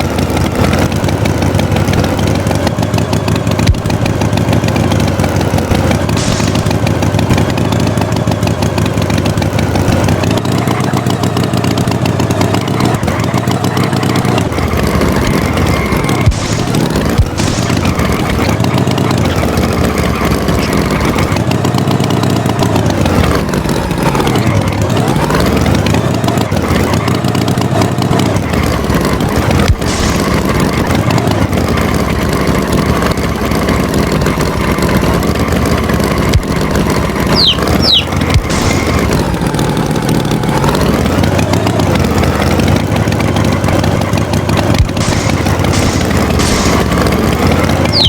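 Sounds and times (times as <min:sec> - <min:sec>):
tractor engine revving: 0:00.0 - 0:48.0
high falling chirps: 0:36.9 - 0:39.2, 0:45.0 - 0:48.0.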